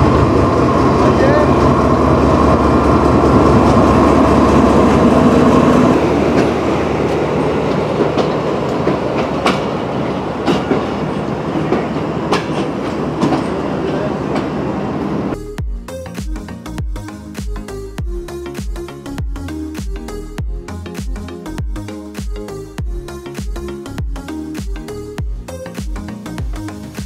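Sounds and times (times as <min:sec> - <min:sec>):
diesel locomotive engine hum: 0:00.0 - 0:27.0
train wheels clicking over rail joints: 0:03.0 - 0:14.6.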